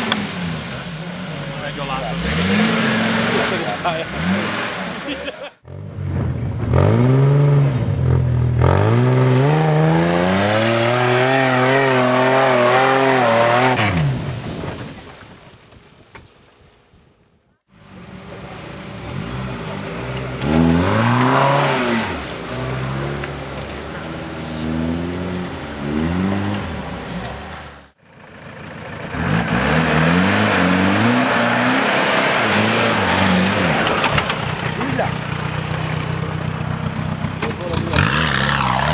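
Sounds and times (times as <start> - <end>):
engine revving hard: 0.0 - 6.0, 6.7 - 14.2, 19.1 - 23.3, 24.6 - 27.8, 29.1 - 35.6, 37.1 - 38.9
off-road engine revving: 0.0 - 14.4, 17.9 - 38.9.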